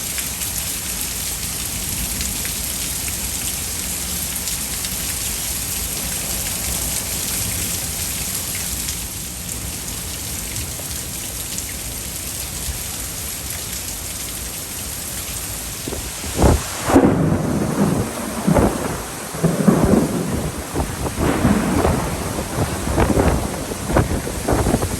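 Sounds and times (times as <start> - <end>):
heavy rain: 0.0 - 24.9
thunder rumbling: 5.2 - 8.6, 15.6 - 24.9.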